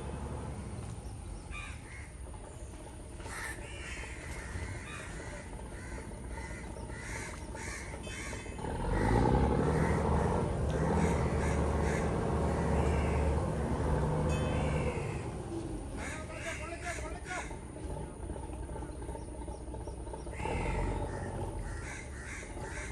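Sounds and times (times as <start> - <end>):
low steady motor drone: 0.0 - 22.9
crows cawing: 1.5 - 2.1, 3.2 - 13.6, 16.0 - 17.6, 20.3 - 22.9.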